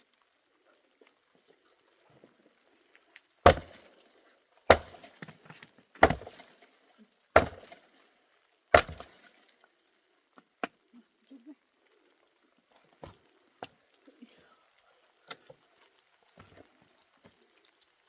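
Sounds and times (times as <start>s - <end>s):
wood crackling: 0.0s - 18.0s
axe chopping wood: 3.4s - 4.0s, 4.7s - 6.6s, 7.4s - 7.9s, 8.7s - 9.4s.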